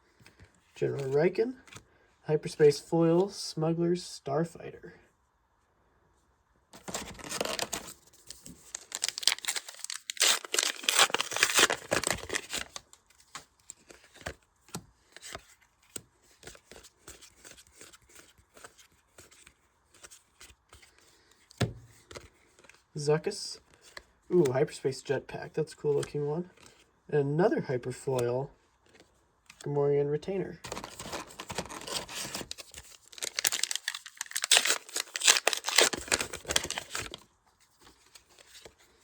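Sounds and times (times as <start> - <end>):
foil wrapper tearing and crinkling: 6.8 - 8.0, 8.6 - 12.8, 30.6 - 37.2.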